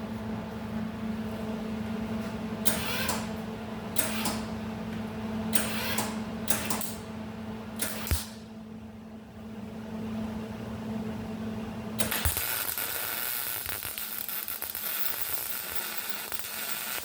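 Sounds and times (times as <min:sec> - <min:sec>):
steady low hum: 0:00.0 - 0:17.0
arc welder crackling: 0:04.0 - 0:04.5, 0:05.6 - 0:07.0, 0:07.8 - 0:08.4, 0:12.0 - 0:17.0.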